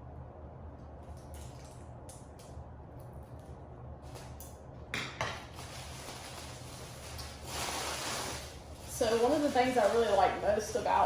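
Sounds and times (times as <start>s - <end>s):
packaging wrap crinkling: 5.4s - 11.0s.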